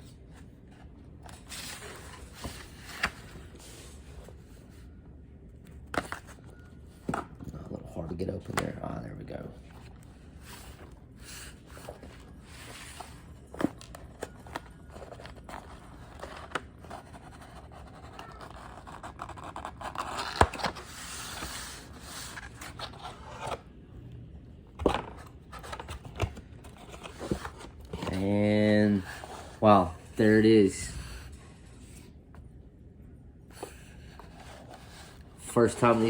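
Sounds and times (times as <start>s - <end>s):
packaging scraping and rubbing: 25.6s - 29.6s.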